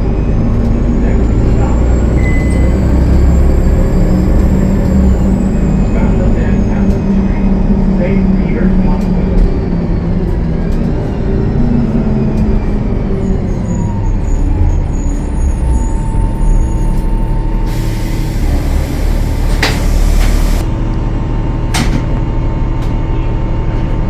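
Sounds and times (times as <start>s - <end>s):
diesel bus engine running: 0.0s - 24.0s
air hiss release: 17.7s - 20.6s.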